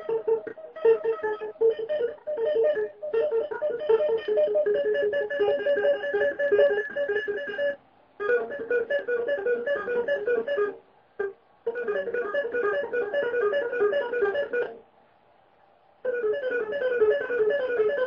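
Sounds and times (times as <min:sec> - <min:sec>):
damped guitar drummed by hand: 0:00.0 - 0:14.7.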